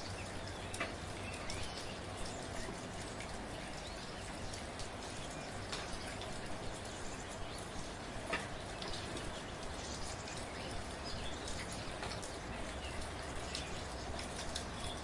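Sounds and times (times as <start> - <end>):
raindrops ticking: 0.0 - 15.0
soft rain hiss: 0.0 - 15.0.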